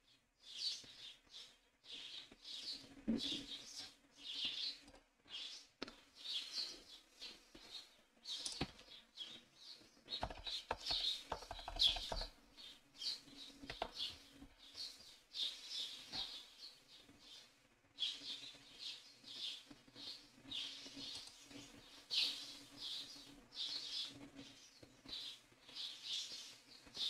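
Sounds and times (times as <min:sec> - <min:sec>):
bird chirping: 0:00.0 - 0:27.0
keyboard typing: 0:10.2 - 0:12.3.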